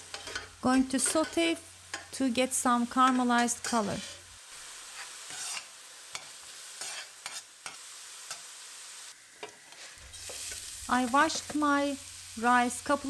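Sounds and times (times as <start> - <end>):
food sizzling in pan: 0.0 - 13.0
metal spoon scraping pan: 0.1 - 2.1, 3.1 - 4.2, 4.9 - 8.4.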